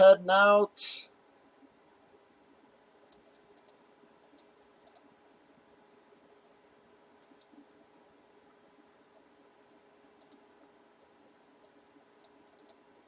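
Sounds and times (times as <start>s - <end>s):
low steady hum: 0.0s - 13.0s
faint sharp clicks: 3.1s - 5.1s, 10.1s - 10.4s.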